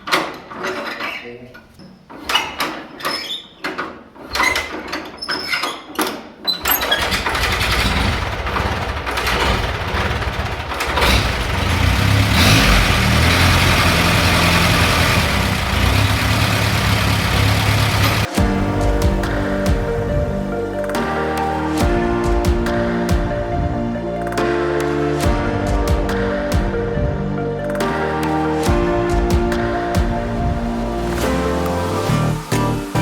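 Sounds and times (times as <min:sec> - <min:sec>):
tractor engine starting: 0:06.6 - 0:21.8.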